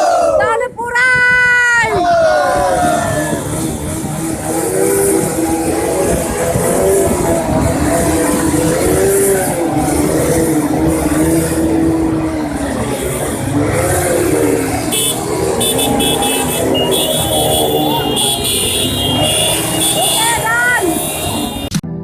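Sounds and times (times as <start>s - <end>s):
wind buffeting microphone: 0.0s - 16.2s
motorcycle engine running: 2.6s - 22.0s.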